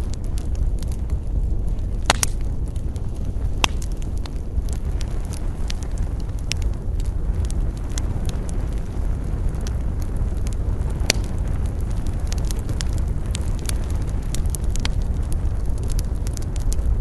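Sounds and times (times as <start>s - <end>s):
campfire crackling: 0.0s - 17.0s
loud fire pop: 1.8s - 6.6s.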